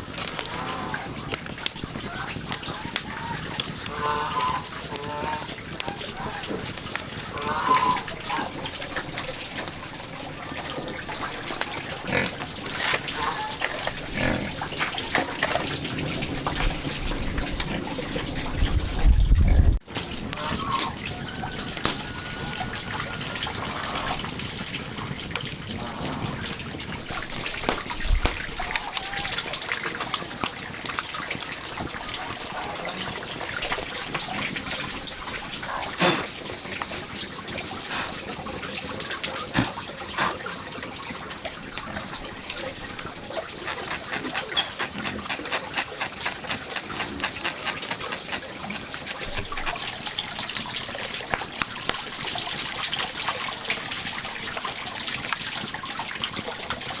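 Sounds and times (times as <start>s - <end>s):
water trickling and splashing: 0.0s - 57.0s.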